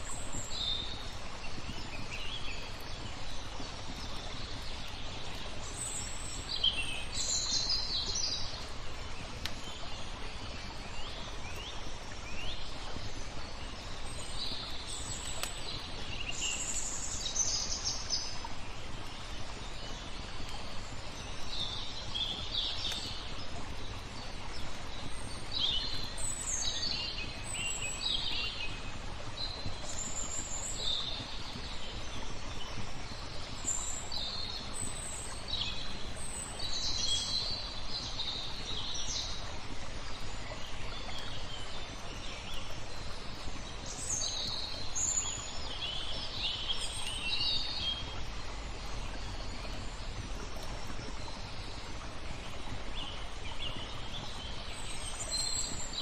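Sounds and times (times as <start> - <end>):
flowing water: 0.0 - 56.0
songbirds chirping: 0.0 - 56.0
wood fire crackling: 8.4 - 9.6, 14.5 - 16.8.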